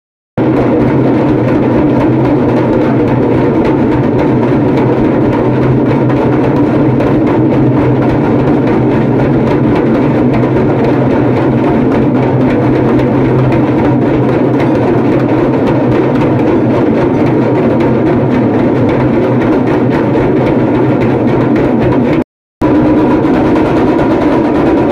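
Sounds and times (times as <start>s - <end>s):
hand drums rattling: 22.6s - 24.9s.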